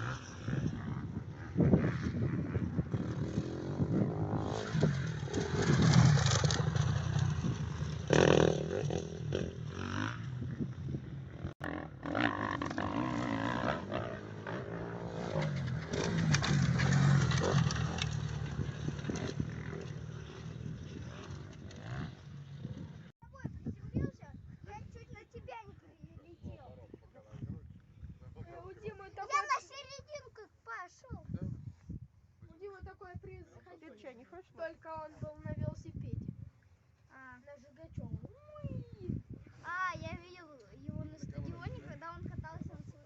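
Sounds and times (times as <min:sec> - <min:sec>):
dirt bike engines revving: 0:00.0 - 0:23.1.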